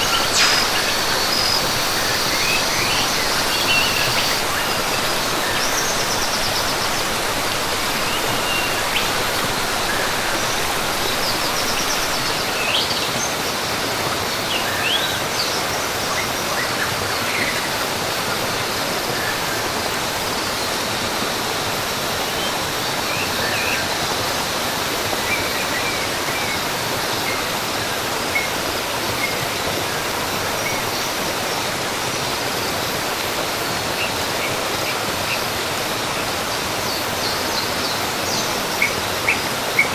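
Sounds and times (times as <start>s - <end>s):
birds chirping: 0.0s - 12.8s
waterfall rushing: 0.0s - 25.4s.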